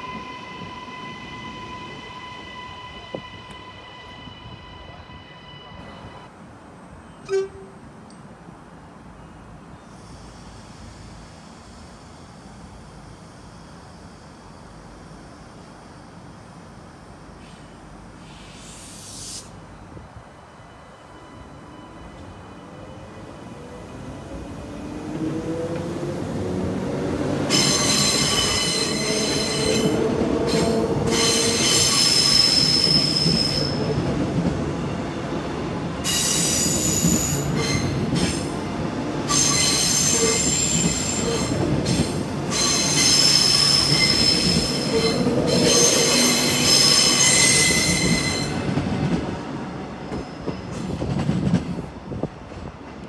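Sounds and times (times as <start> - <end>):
train wheels squealing: 0.0 - 6.3, 20.5 - 23.4, 27.5 - 34.2, 36.0 - 38.6, 39.3 - 48.8, 50.0 - 51.1
train rumble: 22.0 - 53.0.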